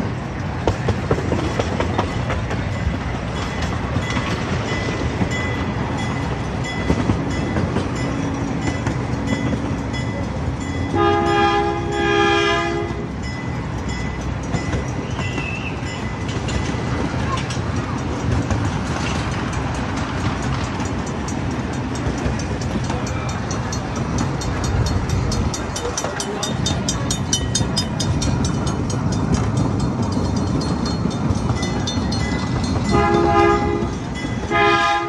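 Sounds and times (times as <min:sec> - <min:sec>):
small train rumbling on track: 0:00.0 - 0:35.0
train horn blasts: 0:10.9 - 0:13.2, 0:32.9 - 0:35.0.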